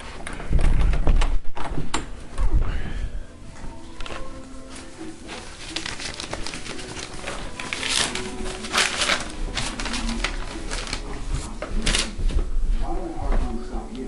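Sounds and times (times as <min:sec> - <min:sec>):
rustling and scuffing: 0:03.5 - 0:13.9.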